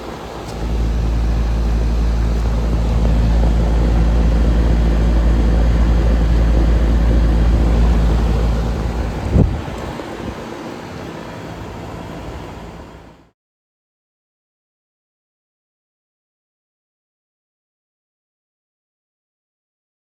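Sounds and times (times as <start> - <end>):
air conditioner unit humming: 0.0 - 13.3
deep low rumble: 0.5 - 10.0.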